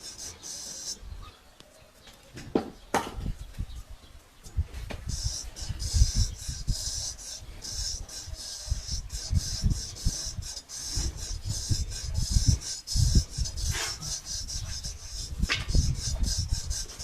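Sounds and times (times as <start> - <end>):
straight razor scraping stubble: 4.8 - 17.0.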